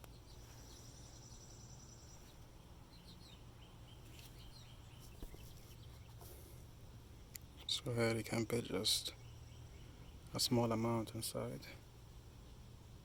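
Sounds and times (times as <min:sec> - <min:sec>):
faint high chirps and ticks: 0:00.0 - 0:06.2
low steady hum: 0:00.0 - 0:13.0.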